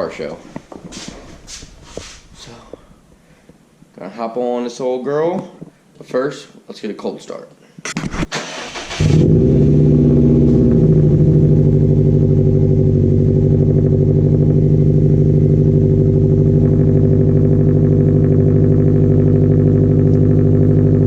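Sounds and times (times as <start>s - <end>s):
motorcycle engine idling: 10.0s - 21.0s.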